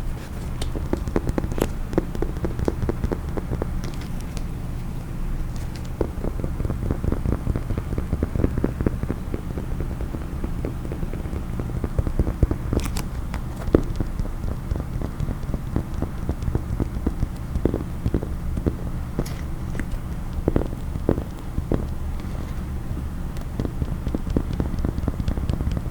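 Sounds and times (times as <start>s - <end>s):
fingers tapping on a case: 0.6s - 4.6s, 5.4s - 25.9s
sharp clicks: 5.5s - 25.9s.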